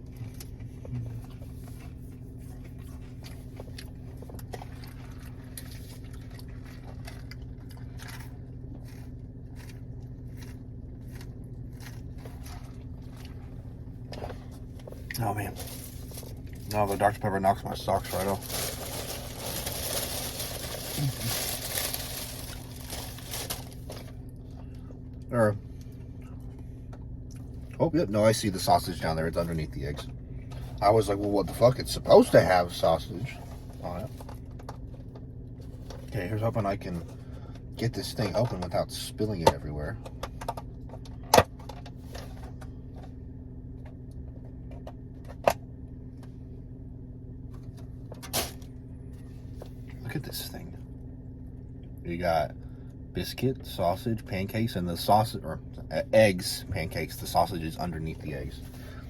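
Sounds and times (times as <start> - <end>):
steady low hum: 0.0 - 59.0
food packaging crinkling: 18.0 - 24.1.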